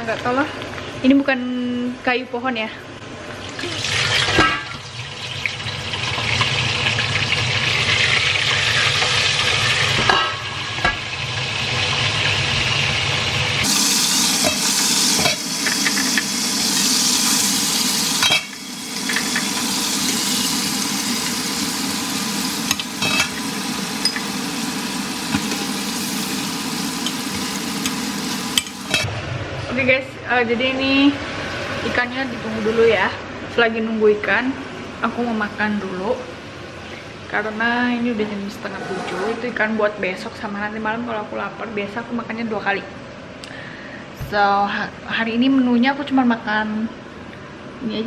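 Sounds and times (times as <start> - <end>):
fish sizzling in hot oil: 3.9 - 29.1.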